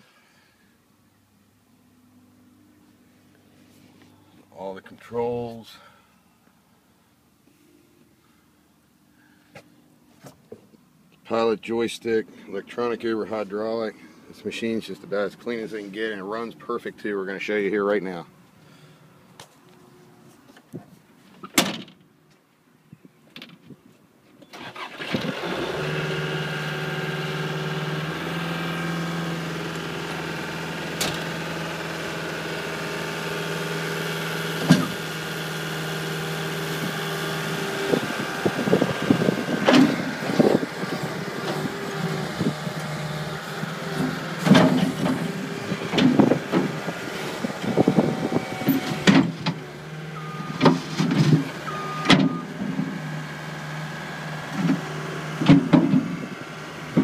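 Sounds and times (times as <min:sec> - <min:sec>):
diesel engine starting and idling: 0:24.5 - 0:57.0.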